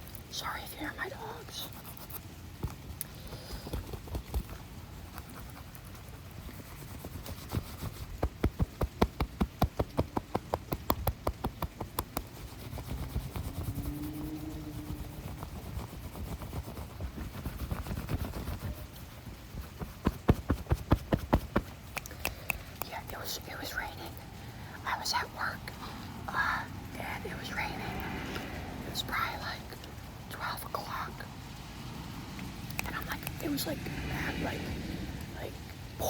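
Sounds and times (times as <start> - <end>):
finger tapping: 8.2 - 12.4, 19.8 - 23.2.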